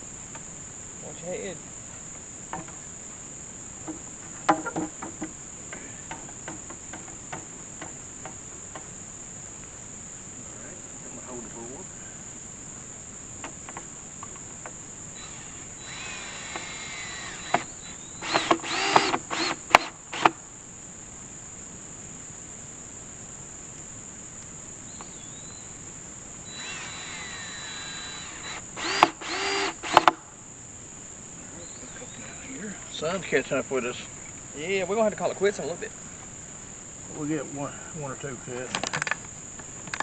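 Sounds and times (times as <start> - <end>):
cordless drill driving screws: 15.2 - 20.3, 26.5 - 30.1.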